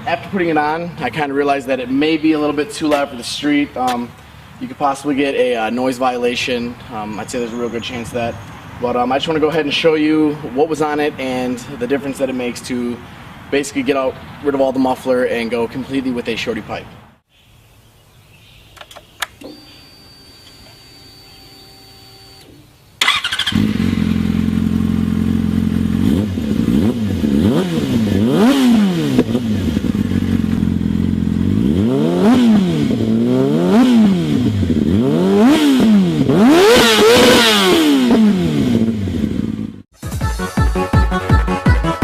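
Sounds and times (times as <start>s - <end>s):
clicks: 18.7s - 19.8s
motorcycle engine revving: 21.2s - 39.9s.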